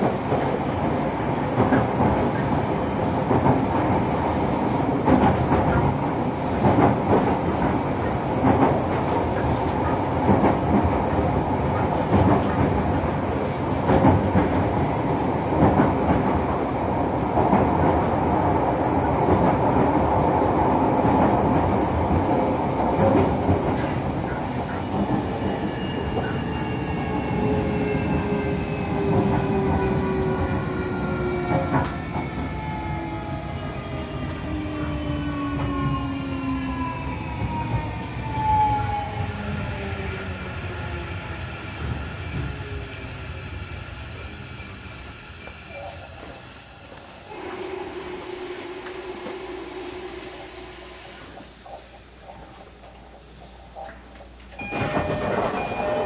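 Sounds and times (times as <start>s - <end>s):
train wheels rumbling on rail: 0.0s - 56.0s
rail-joint clicks: 5.0s - 14.8s, 22.9s - 26.6s, 51.4s - 56.0s.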